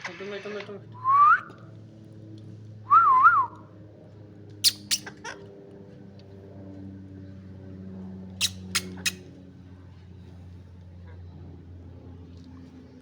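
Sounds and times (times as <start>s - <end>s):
parrot chirping: 4.6s - 5.4s, 8.4s - 9.2s.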